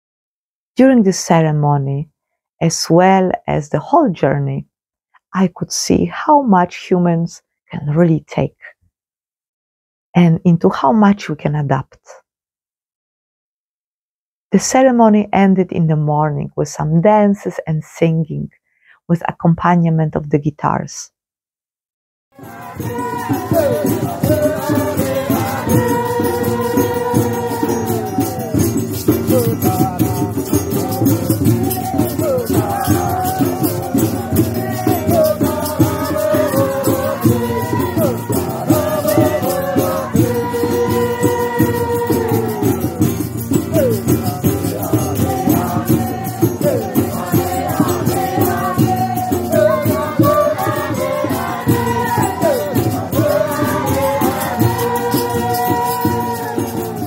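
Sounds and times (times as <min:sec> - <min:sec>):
person singing melody: 0:22.4 - 0:57.0
shaken rattle rhythm: 0:22.4 - 0:57.0.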